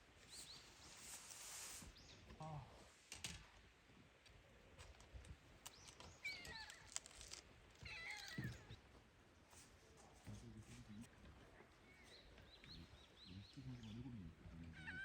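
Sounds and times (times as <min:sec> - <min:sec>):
faint animal calls: 0:14.0 - 0:15.0.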